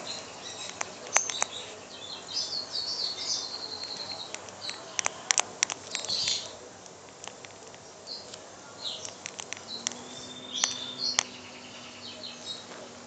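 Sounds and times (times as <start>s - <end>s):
small bird twittering: 0.0s - 6.6s, 8.0s - 12.7s
sharp clicks: 0.6s - 1.6s, 3.8s - 11.4s.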